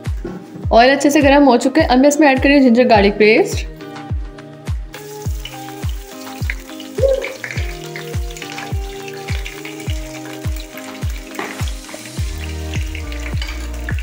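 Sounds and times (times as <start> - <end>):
music with steady drum beat: 0.0 - 14.0
paste sizzling in hot oil: 4.9 - 14.0.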